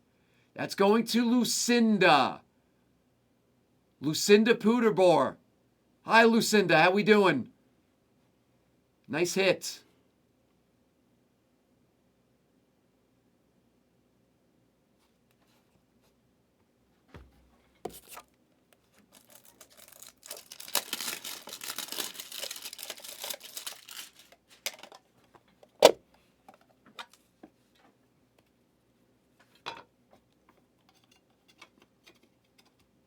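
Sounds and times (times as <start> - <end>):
plastic sleeve rustling: 17.9 - 25.1.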